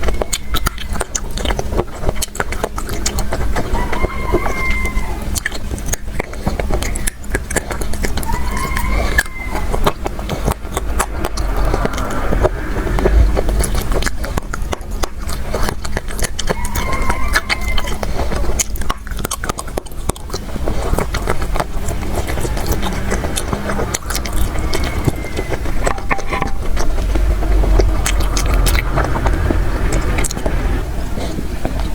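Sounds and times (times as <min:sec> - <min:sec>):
low rumble: 0:09.0 - 0:15.8, 0:21.2 - 0:31.9.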